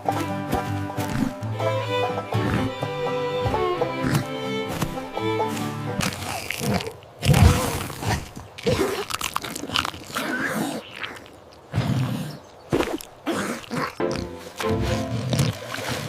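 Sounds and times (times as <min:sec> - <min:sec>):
cartoon crunching and smacking: 0:06.0 - 0:11.6.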